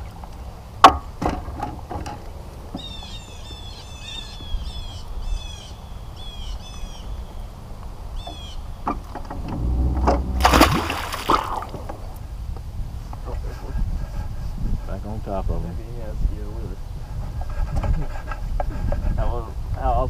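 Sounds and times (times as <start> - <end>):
low rumble: 9.4 - 12.4
water splashing and rushing: 10.0 - 12.2.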